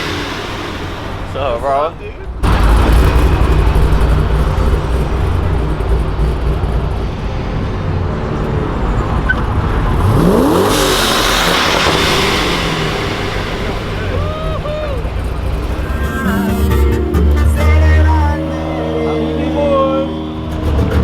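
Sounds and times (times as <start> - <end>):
broad rushing noise: 0.0 - 21.0
car engine revving: 0.0 - 21.0.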